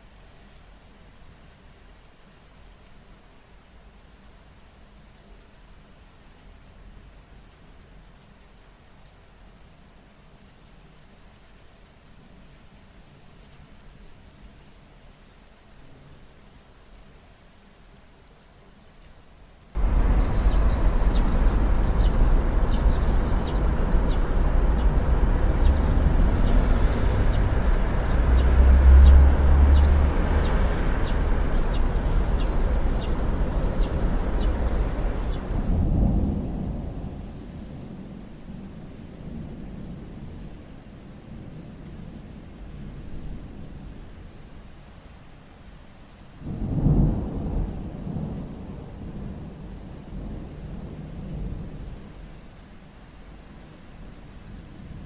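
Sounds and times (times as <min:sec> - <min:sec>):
steady rain: 0:00.0 - 0:55.0
deep low rumble: 0:19.8 - 0:36.2.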